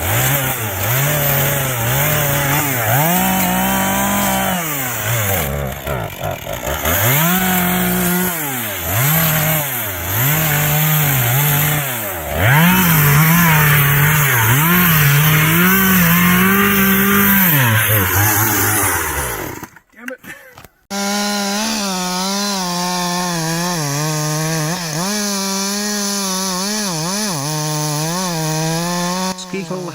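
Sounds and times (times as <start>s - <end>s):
chainsaw engine revving: 0.0s - 19.9s, 20.9s - 29.9s.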